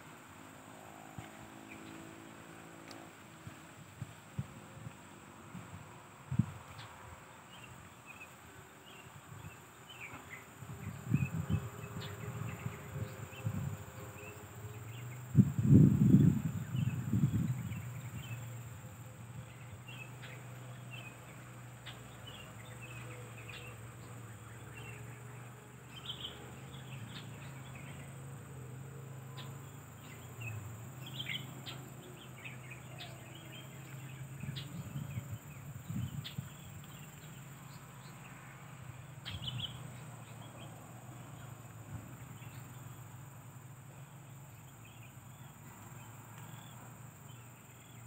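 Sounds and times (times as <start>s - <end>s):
birds chirping and clicking: 19.4s - 28.1s, 29.4s - 40.8s.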